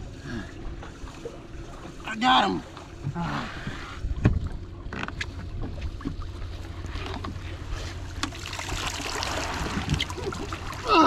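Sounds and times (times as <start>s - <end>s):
boat engine rumble: 0.0s - 11.0s
water splashing: 7.7s - 11.0s.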